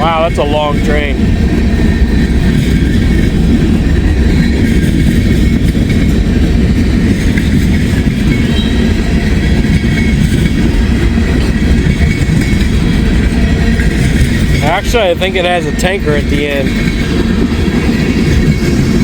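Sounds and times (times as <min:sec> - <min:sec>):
train wheels rumbling on rail: 0:00.0 - 0:19.0
wheels squealing: 0:00.2 - 0:19.0.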